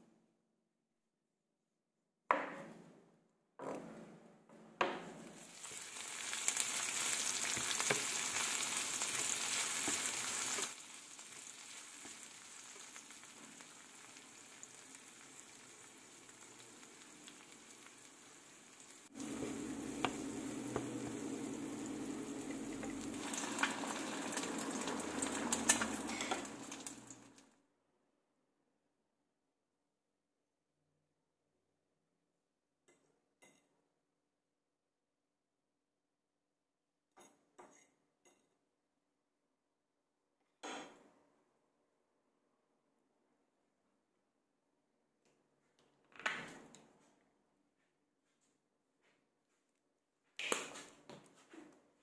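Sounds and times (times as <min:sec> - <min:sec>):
food sizzling in a pan: 0:05.3 - 0:27.4.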